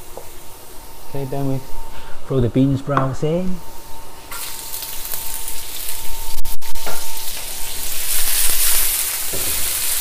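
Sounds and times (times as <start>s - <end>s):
vegetables sizzling in hot oil: 4.2s - 10.0s.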